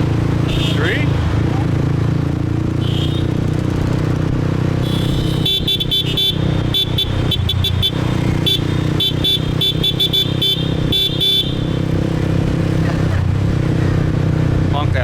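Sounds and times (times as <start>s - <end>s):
motorbike engine and road hum: 0.0s - 15.0s
horn short quick honks: 0.4s - 1.0s, 2.8s - 3.4s, 4.8s - 11.8s.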